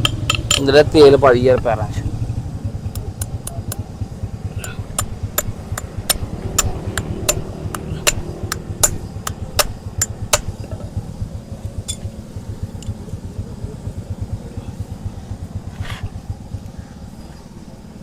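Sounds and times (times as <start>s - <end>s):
hammer tapping: 0.0s - 0.7s, 4.6s - 11.0s
low engine-like rumble: 0.0s - 18.0s.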